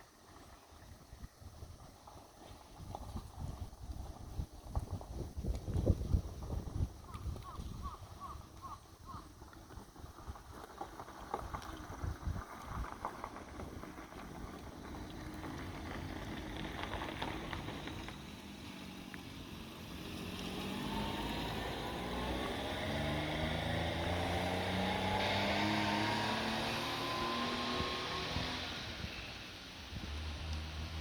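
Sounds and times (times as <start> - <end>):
outdoor noise: 0.0 - 31.0
motor engine speeding up: 14.4 - 31.0.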